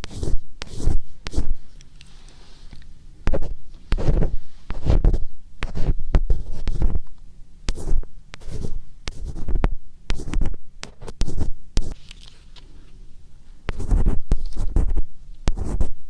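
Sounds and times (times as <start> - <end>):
scratching strokes and clicks: 0.0 - 7.1.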